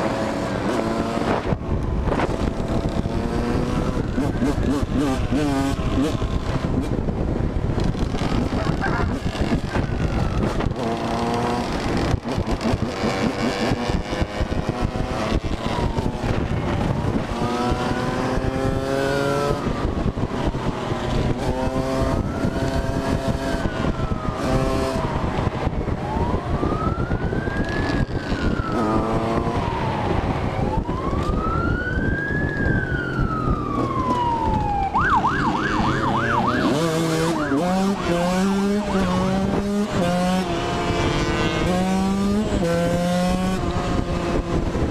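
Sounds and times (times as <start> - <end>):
motorcycle engine revving: 0.0 - 44.9
wind and road rush: 0.0 - 44.9
police siren wailing and yelping: 3.5 - 5.4, 8.5 - 11.2, 15.2 - 20.8, 21.4 - 40.5.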